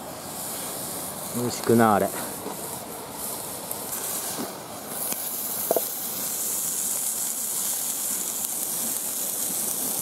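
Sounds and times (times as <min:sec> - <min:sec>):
chicken sizzling on grill: 0:00.0 - 0:10.0.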